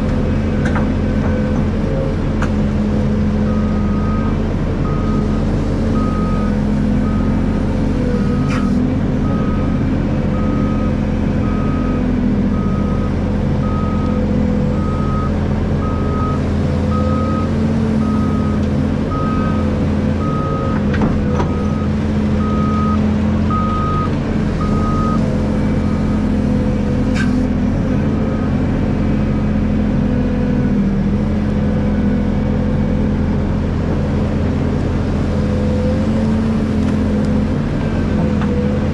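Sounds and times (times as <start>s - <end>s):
diesel engine running: 0.0s - 38.9s
reversing alarm beeping: 3.5s - 5.4s, 6.0s - 7.5s, 8.2s - 20.8s, 21.4s - 26.2s.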